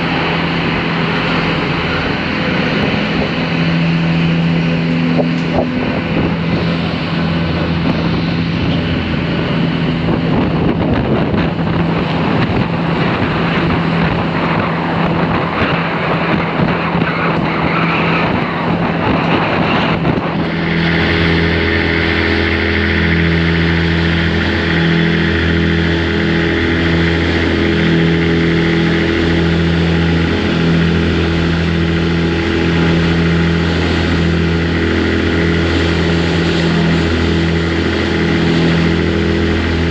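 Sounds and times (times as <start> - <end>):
vehicle engine running: 0.0 - 15.4.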